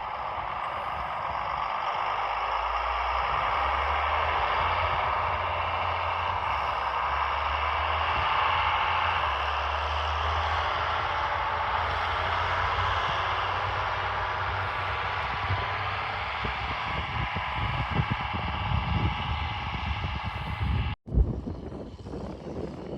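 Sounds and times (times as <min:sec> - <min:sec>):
tractor diesel engine droning: 0:00.0 - 0:22.9.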